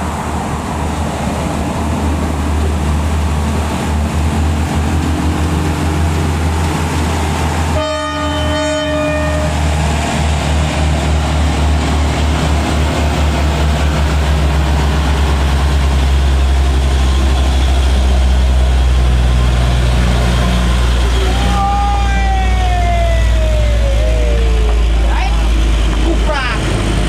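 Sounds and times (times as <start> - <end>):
truck diesel engine labouring: 0.0 - 27.0
vehicle horn: 7.7 - 9.5.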